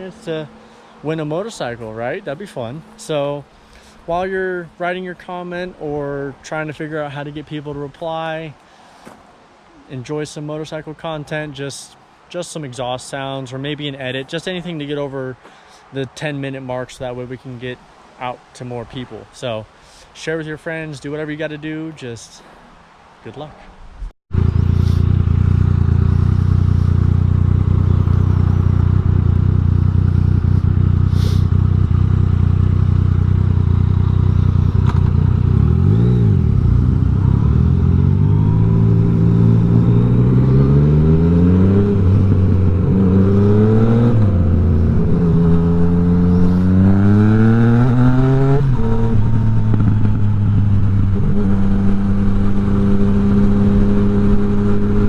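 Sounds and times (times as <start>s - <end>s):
motorcycle engine idling and revving: 24.3s - 55.0s.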